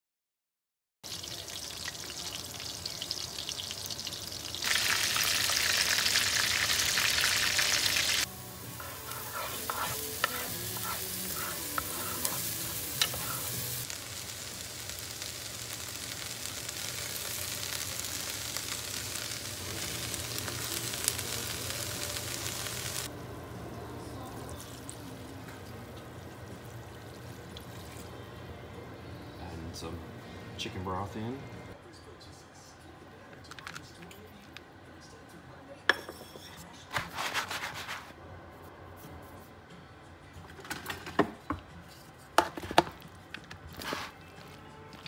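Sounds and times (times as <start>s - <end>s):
food sizzling in hot oil: 1.1s - 23.1s
onion sizzling while stirred: 1.1s - 23.1s, 43.7s - 45.0s.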